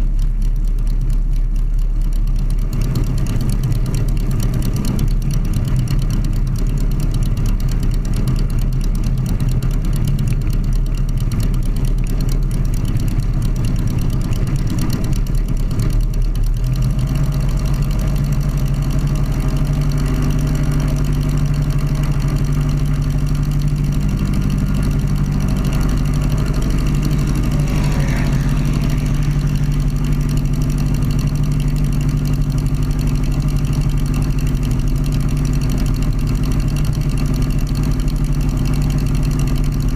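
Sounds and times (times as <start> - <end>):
aircraft engine running: 12.7 - 37.5.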